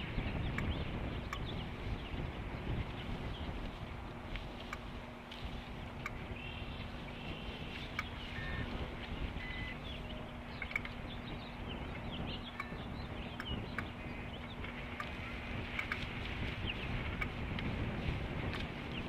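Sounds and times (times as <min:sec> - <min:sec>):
faint hum: 0:00.0 - 0:19.0
wind buffeting microphone: 0:00.0 - 0:19.0
high bird chirps: 0:06.3 - 0:15.4
sharp clicks: 0:10.6 - 0:11.0.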